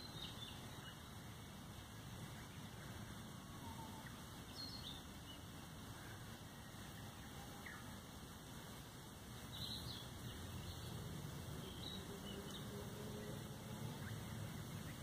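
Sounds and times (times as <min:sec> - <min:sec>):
faint bird chirps: 0:00.0 - 0:08.2.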